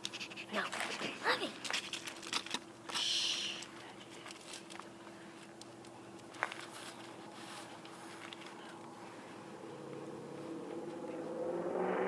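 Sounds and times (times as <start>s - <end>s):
faint steady hum: 0.0s - 11.8s.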